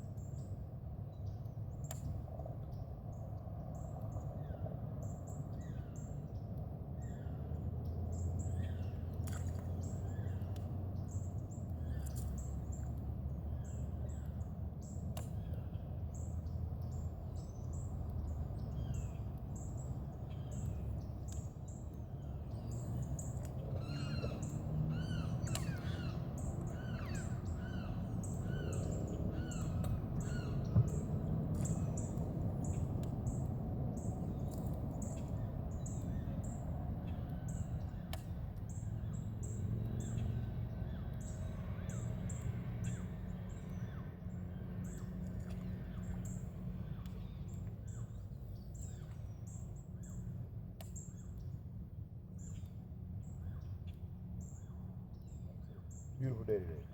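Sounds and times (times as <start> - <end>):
steady low rumble: 0.0 - 56.9
harsh caw-like bird calls: 23.7 - 31.0.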